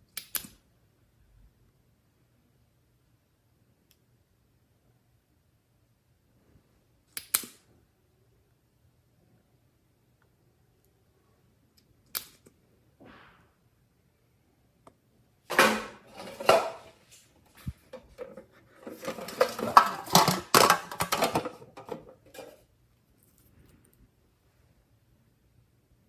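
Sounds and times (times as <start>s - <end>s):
clattering tapping and scraping: 15.5s - 22.6s.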